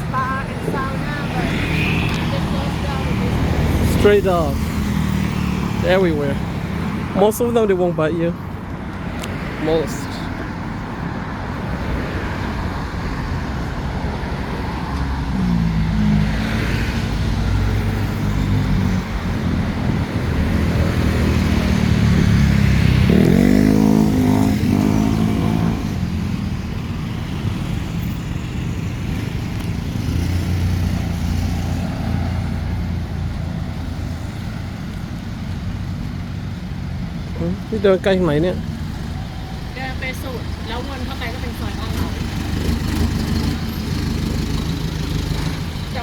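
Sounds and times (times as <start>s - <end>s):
vehicles passing close by: 0.0s - 46.0s
engine accelerating by: 19.9s - 26.1s, 41.0s - 46.0s.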